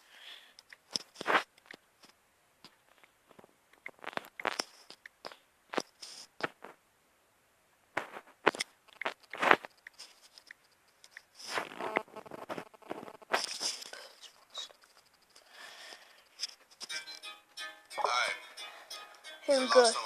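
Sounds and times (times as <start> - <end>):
handling clicks and crackles: 8.0 - 16.9.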